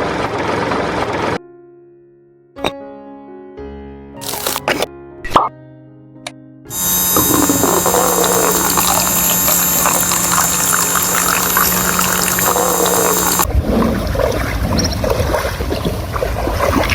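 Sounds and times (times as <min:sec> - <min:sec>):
electric water pump whining: 0:04.2 - 0:04.6, 0:06.7 - 0:13.5
water pouring and splashing: 0:06.8 - 0:16.9.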